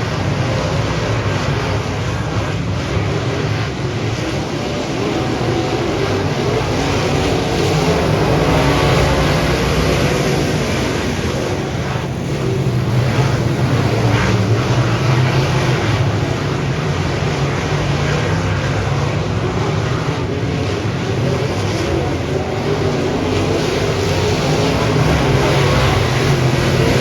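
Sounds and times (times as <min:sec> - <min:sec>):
race car engine drone: 0:00.0 - 0:27.0.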